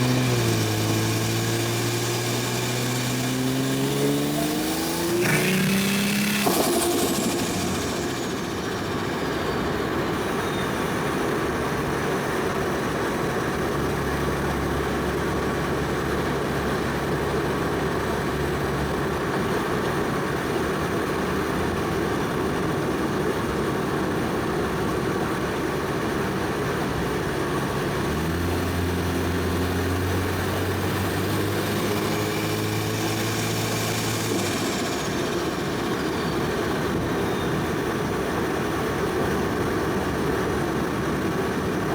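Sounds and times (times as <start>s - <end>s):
turbo whistle: 0.0s - 11.0s
car engine cruising: 0.0s - 21.8s, 24.9s - 41.9s
road noise: 0.0s - 22.1s, 23.5s - 41.9s.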